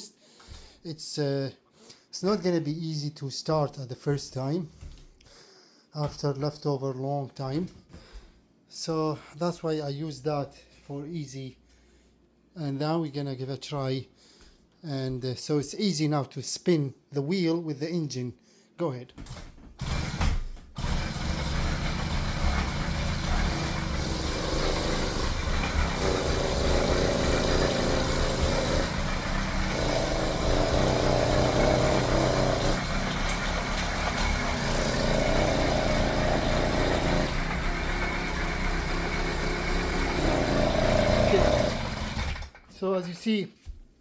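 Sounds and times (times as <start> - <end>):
engine turning over without catching: 19.8 - 42.7.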